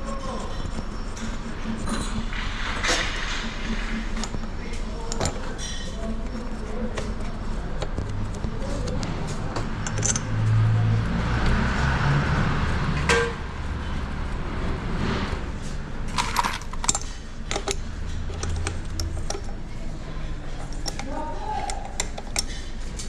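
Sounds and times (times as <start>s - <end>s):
steady low hum: 0.0s - 23.0s
metal tools clinking and rattling: 2.8s - 7.3s, 8.7s - 10.7s, 16.0s - 19.8s, 20.5s - 23.0s.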